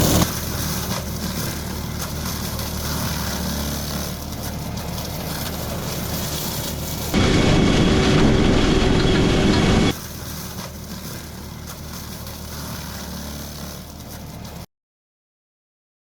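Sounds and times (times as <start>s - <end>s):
brush mulcher machine drone: 0.0s - 14.6s
machine whining tones: 7.1s - 10.0s.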